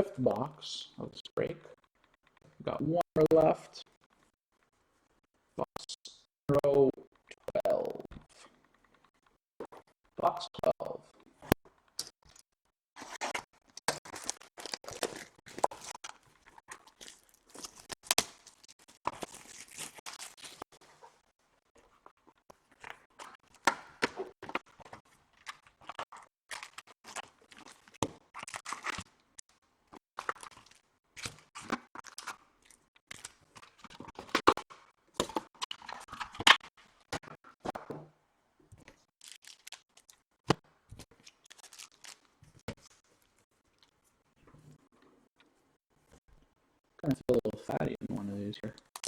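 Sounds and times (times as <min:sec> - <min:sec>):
wrapping torn and crinkled: 0:12.0 - 0:29.5, 0:30.2 - 0:34.8, 0:38.9 - 0:40.3, 0:41.0 - 0:43.9
foil packs rustling and tapping: 0:13.0 - 0:21.2.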